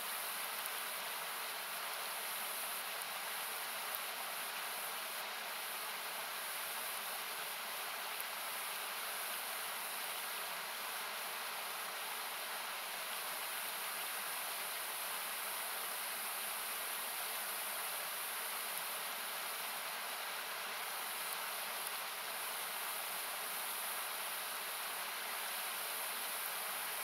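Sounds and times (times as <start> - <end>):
faint campfire crackling: 0.0 - 27.0.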